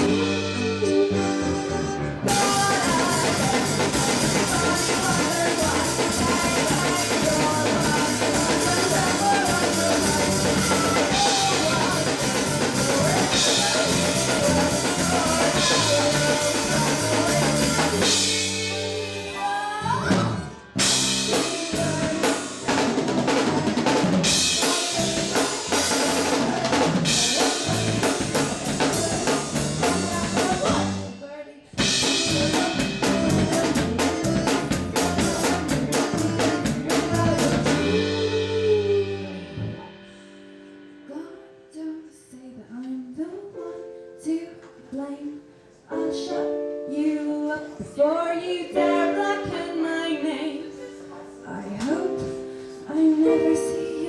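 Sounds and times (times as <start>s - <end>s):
drum kit beat: 0.0s - 31.1s, 31.8s - 40.2s
band music: 0.0s - 41.2s.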